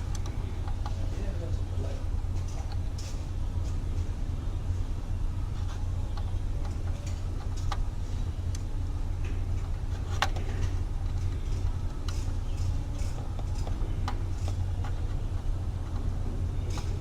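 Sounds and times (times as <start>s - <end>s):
steady low hum: 0.0s - 17.0s
small tools clicking and tapping: 6.1s - 7.9s, 8.5s - 17.0s.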